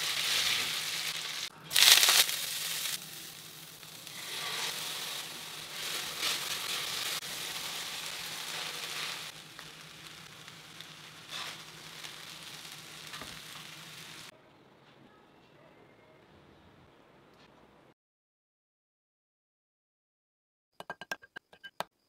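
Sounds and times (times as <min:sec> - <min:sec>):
vegetables and rice sizzling in a pan: 0:00.0 - 0:14.3.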